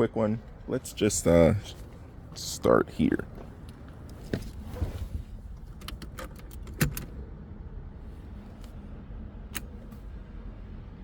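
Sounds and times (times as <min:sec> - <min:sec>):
ignition key clicks: 0:09.5 - 0:10.0.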